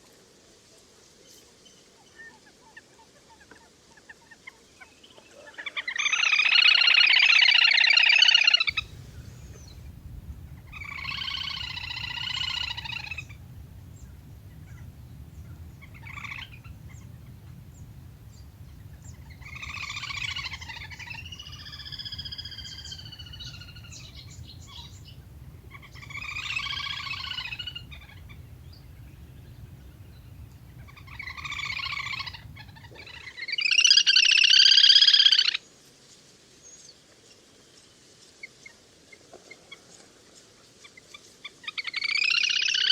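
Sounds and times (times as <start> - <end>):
waterbird calls: 8.4 - 34.0
low steady hum: 8.7 - 33.1.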